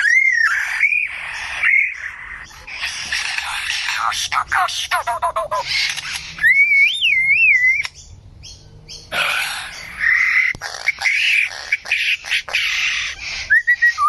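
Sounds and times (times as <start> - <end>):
bird whistling: 0.0 - 2.5, 5.5 - 9.0, 9.7 - 14.0
harsh bird calls with clicks: 0.0 - 13.4.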